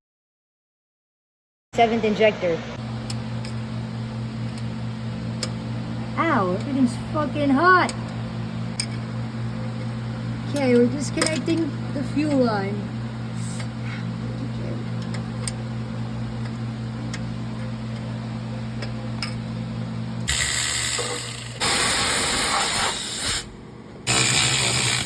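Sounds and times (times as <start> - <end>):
loud hissing spray: 20.3 - 23.5.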